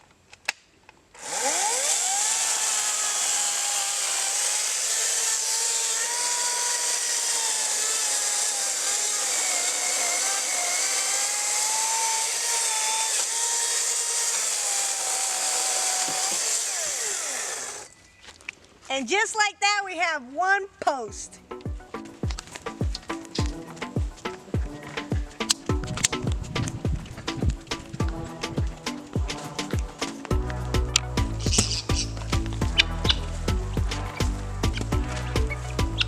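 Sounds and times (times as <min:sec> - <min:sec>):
chainsaw cutting a log: 0:01.1 - 0:17.9, 0:27.4 - 0:36.0.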